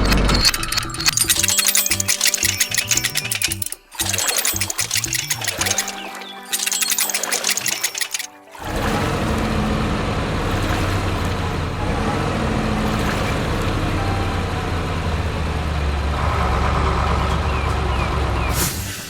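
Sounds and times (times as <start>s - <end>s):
heavy truck engine running: 8.6s - 19.0s.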